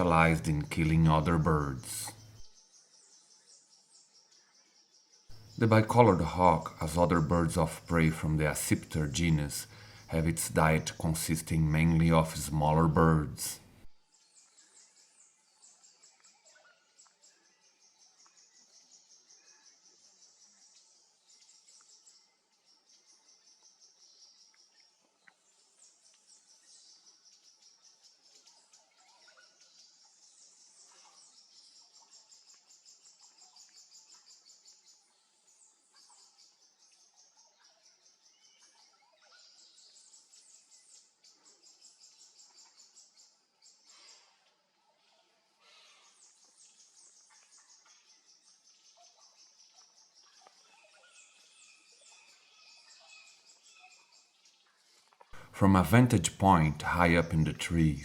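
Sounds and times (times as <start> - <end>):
faint bird calls: 5.3 - 13.8, 43.8 - 46.4.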